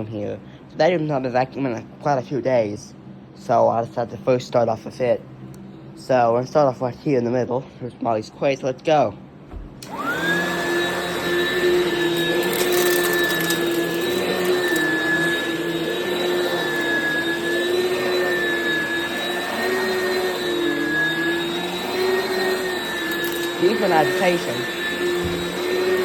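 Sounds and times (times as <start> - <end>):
vacuum cleaner motor whining: 9.5 - 26.0.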